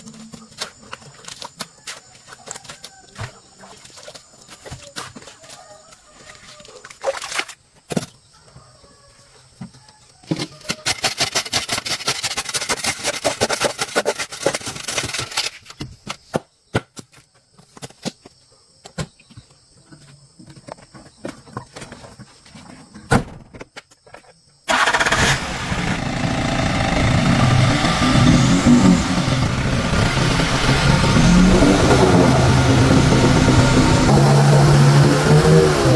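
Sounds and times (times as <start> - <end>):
rapid rattling: 24.7 - 35.9
vehicle engine running: 24.7 - 35.9.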